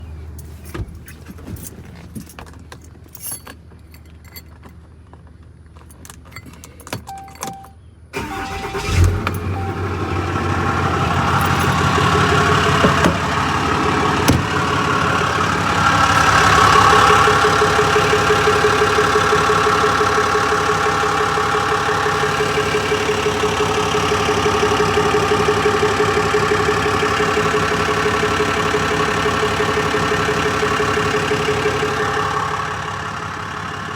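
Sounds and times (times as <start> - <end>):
diesel engine starting and idling: 6.0 - 33.9
engine ticking: 6.1 - 33.9.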